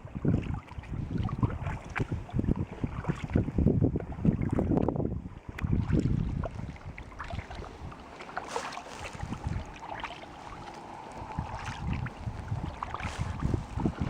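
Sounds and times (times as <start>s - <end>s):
water splashing around kayak: 0.0s - 14.0s
wind buffeting microphone: 0.0s - 14.0s
water drips: 5.5s - 14.0s.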